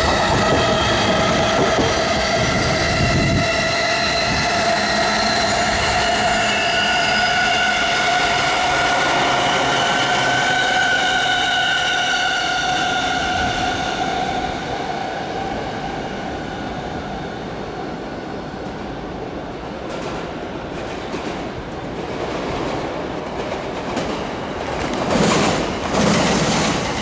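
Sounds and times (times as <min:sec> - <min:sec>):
train cars running on rails: 0:00.0 - 0:27.0.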